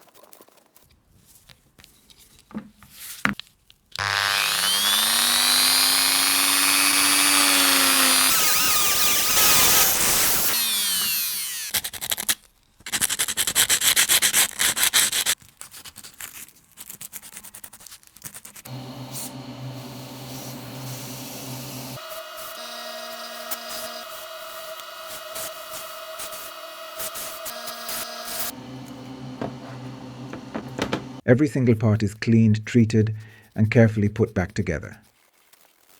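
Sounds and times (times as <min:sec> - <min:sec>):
rotary tool whining and grinding: 0:04.0 - 0:11.9, 0:18.7 - 0:31.2.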